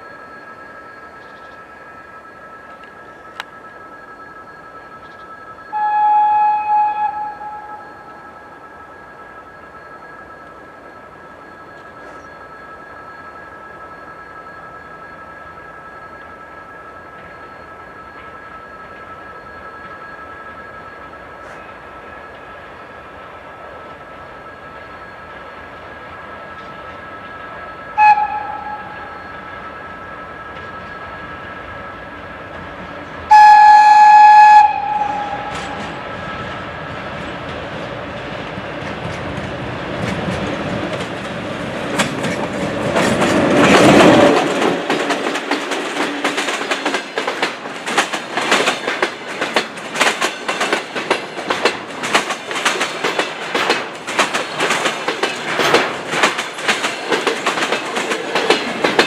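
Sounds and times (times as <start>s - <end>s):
freight train passing: 0.0s - 59.0s
locomotive horn blast: 5.7s - 8.5s, 27.9s - 29.3s, 33.3s - 36.3s
wheels clacking over rail joints: 34.6s - 59.0s.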